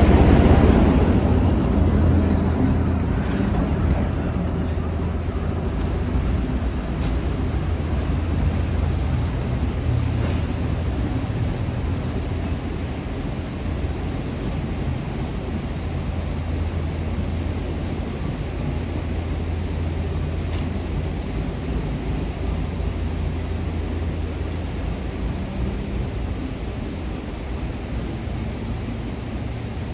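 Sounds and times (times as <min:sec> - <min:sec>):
even rushing noise: 0:00.0 - 0:13.0
moving vehicle rumble: 0:00.0 - 0:29.9.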